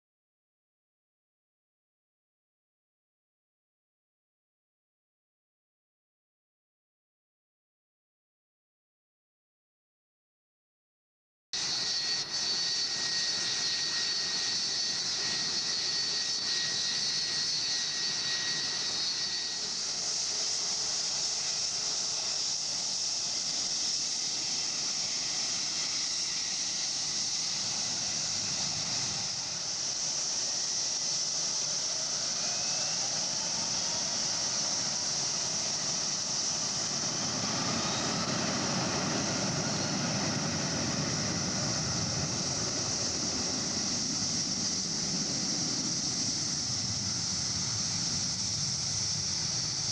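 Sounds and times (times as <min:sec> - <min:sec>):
jet engines hissing: 0:11.6 - 0:49.9.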